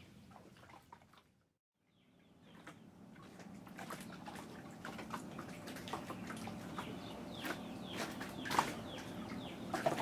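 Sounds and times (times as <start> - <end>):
birds chirping downward calls: 5.7 - 10.0.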